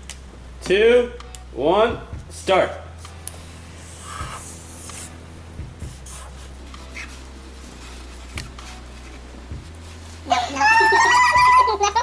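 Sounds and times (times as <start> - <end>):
low electrical hum: 0.0 - 12.0
pens scratching on paper: 3.8 - 5.2, 5.8 - 11.5.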